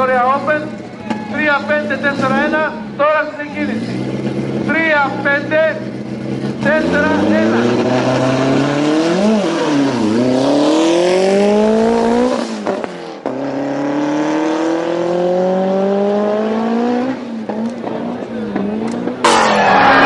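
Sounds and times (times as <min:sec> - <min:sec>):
drag car engine accelerating: 0:00.0 - 0:20.0.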